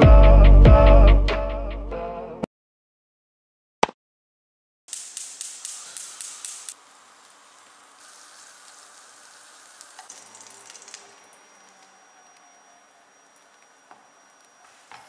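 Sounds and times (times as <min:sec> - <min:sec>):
small pops: 0:04.9 - 0:06.8
food sizzling in a pan: 0:04.9 - 0:15.0.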